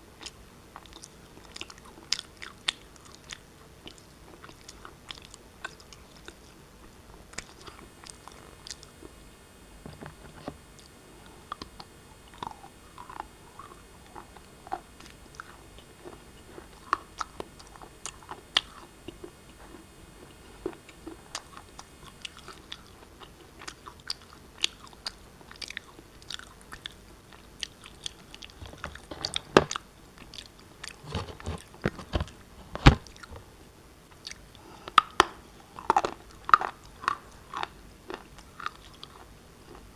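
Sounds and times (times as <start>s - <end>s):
shale being chewed with crunches: 0.2s - 9.2s, 10.8s - 33.5s, 34.1s - 39.9s.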